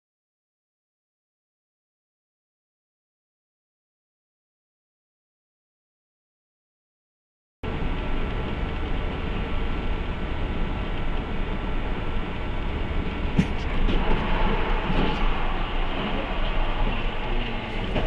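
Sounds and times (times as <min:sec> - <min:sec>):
vehicle rumble from inside: 0:07.6 - 0:18.0
sharp knock: 0:13.4 - 0:14.3.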